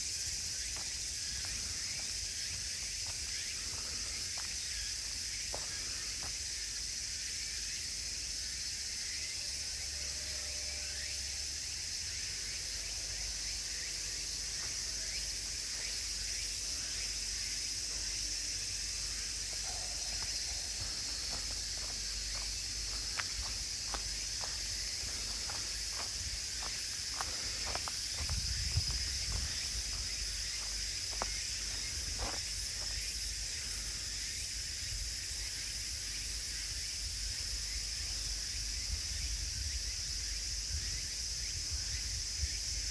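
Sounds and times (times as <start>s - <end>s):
footsteps on woodland path: 0.0s - 7.2s, 13.5s - 34.4s
insects shrilling: 12.1s - 34.6s.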